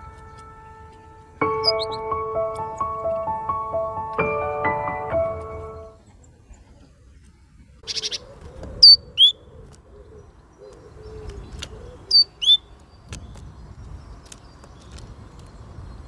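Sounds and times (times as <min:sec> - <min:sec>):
bird two-note call: 0:00.0 - 0:03.0
songbird chattering: 0:00.2 - 0:02.1.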